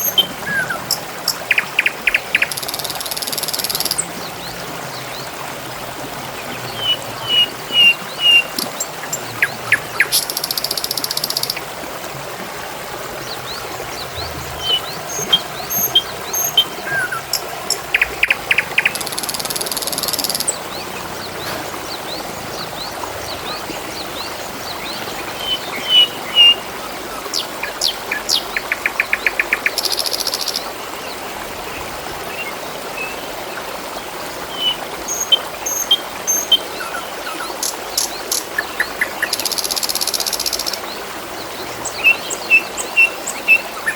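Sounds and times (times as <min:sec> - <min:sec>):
small birds chirping: 0:00.0 - 0:05.1, 0:06.4 - 0:11.7, 0:13.2 - 0:30.6
babbling water: 0:00.0 - 0:43.9.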